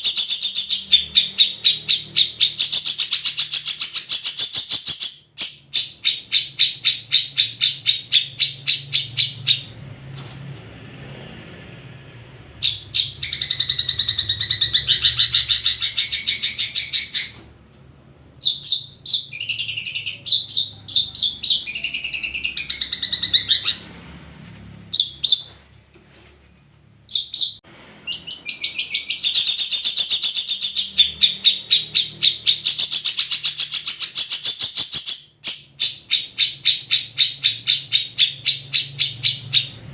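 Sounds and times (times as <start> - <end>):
birds chattering and warbling: 12.6 - 17.4, 27.1 - 35.0.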